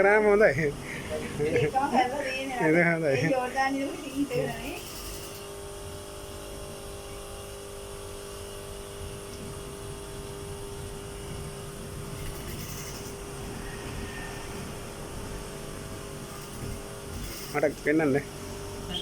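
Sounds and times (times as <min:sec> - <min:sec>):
constant mid-pitched tone: 0:00.0 - 0:05.7, 0:10.1 - 0:19.0.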